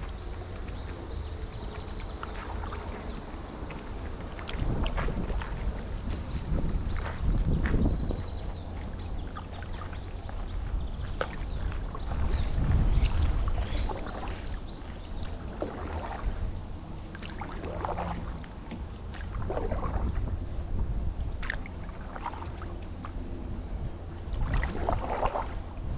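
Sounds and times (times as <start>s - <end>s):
paddle strokes in water: 0.0s - 25.9s
wind on microphone: 0.0s - 25.9s
small birds chirping: 5.7s - 19.4s.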